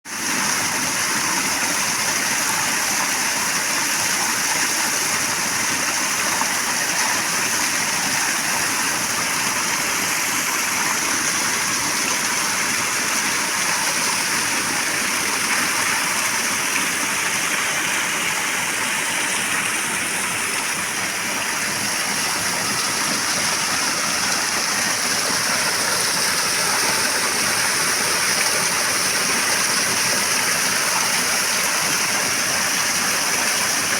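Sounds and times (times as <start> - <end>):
water rushing: 0.1 - 33.9.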